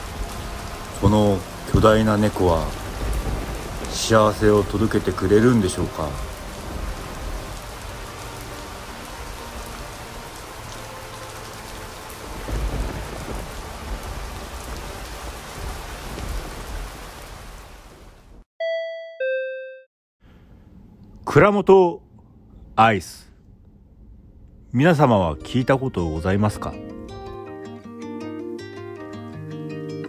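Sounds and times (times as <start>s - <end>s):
low rumble of thunder: 0.0s - 10.3s, 11.8s - 18.1s
heavy rain: 0.0s - 18.4s
two-note doorbell chime: 18.6s - 19.9s.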